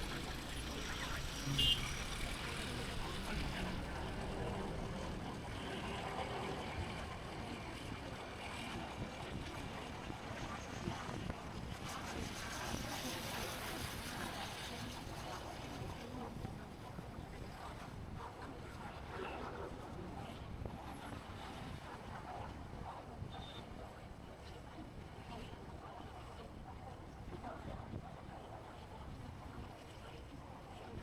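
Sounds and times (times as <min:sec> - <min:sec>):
motorbike engine: 0:00.0 - 0:06.0.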